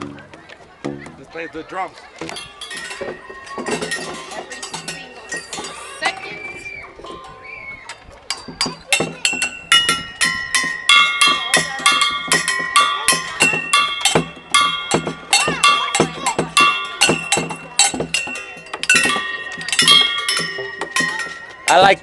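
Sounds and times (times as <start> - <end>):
tuned metal percussion struck quickly: 8.3 - 21.9.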